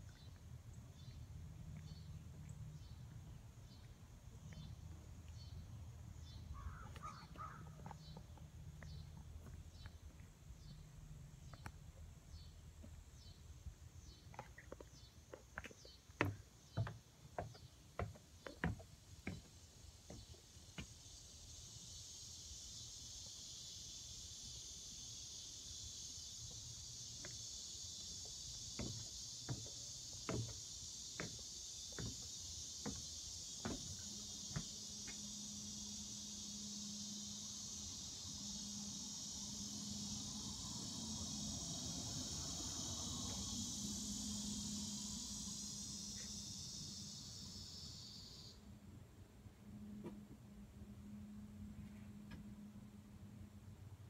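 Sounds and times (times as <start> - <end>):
insects chirping: 0.0 - 53.9
low hum: 48.6 - 54.0.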